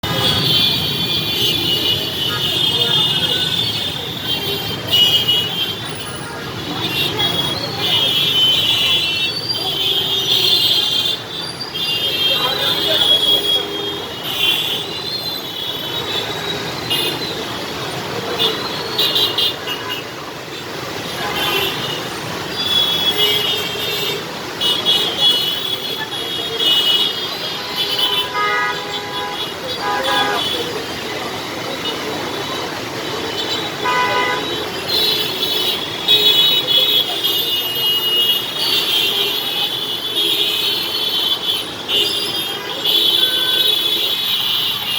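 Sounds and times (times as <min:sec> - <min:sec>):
passing vehicles: 0:00.0 - 0:39.7
street traffic: 0:00.0 - 0:44.9
car horns honking: 0:21.0 - 0:32.6, 0:33.2 - 0:44.9.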